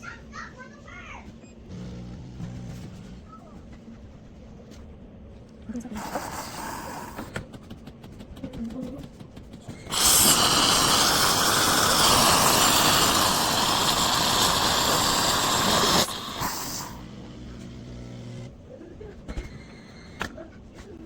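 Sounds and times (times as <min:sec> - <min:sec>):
steam hissing through milk: 0:05.9 - 0:07.4, 0:09.7 - 0:17.2
espresso machine hum: 0:09.7 - 0:18.5.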